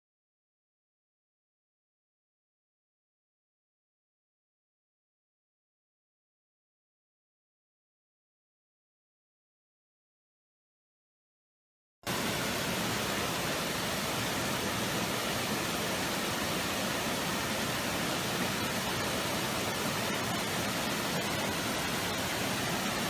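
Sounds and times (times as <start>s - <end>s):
steady rushing hiss: 12.1s - 23.0s.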